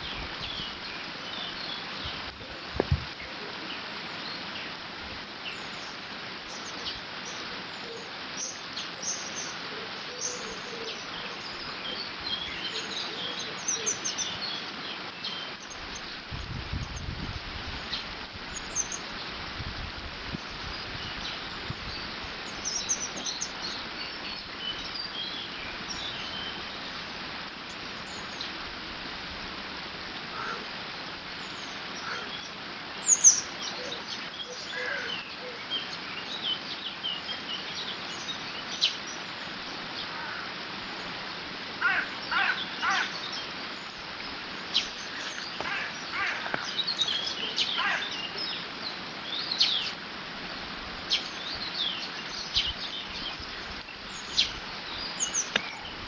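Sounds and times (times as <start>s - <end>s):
birds singing and calling: 0.0s - 4.8s, 5.4s - 19.4s, 20.3s - 27.0s, 30.4s - 56.0s
harsh repeated bird calls: 30.3s - 30.7s, 32.0s - 35.6s, 41.8s - 43.6s, 44.6s - 48.7s.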